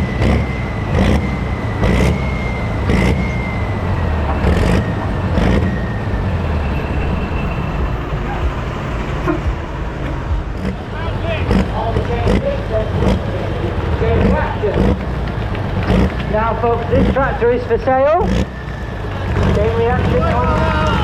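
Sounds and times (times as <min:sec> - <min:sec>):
high steady whistle: 0:00.0 - 0:09.6, 0:18.4 - 0:21.0
diesel engine running: 0:00.0 - 0:21.0.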